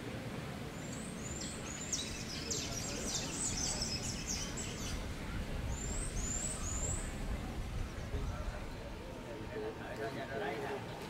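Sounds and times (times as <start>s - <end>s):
small bird singing: 0.8s - 8.9s
low background rumble: 1.1s - 10.3s.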